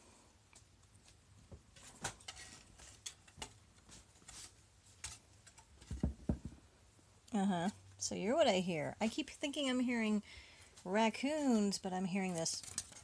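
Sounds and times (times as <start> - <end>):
claws tapping and slats rattling: 1.0 - 6.7, 11.3 - 13.0.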